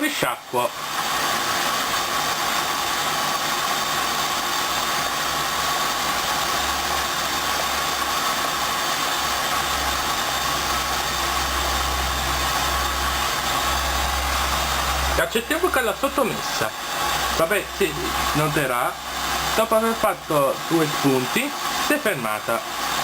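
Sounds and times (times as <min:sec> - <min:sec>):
washing machine hiss: 0:00.0 - 0:23.0
low motor hum: 0:06.7 - 0:21.0.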